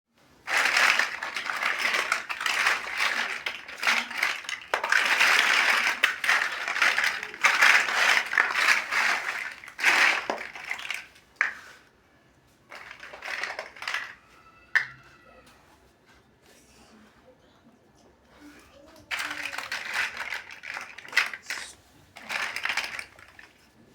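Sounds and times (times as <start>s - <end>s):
plastic bricks clattering: 0.4s - 11.8s, 12.7s - 14.2s, 14.8s - 15.0s, 19.0s - 23.7s.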